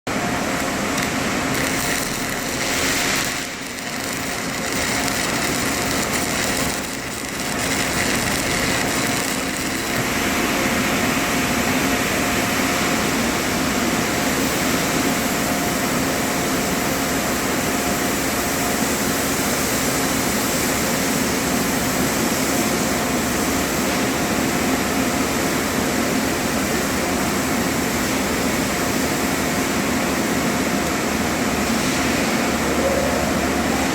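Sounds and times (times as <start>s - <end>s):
machine hum: 0.1s - 14.3s.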